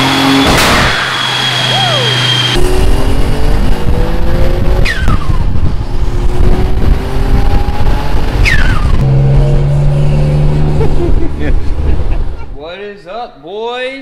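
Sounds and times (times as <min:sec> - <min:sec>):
turbo whistle: 0:00.0 - 0:02.6, 0:08.4 - 0:08.9
car engine revving hard: 0:00.0 - 0:12.0.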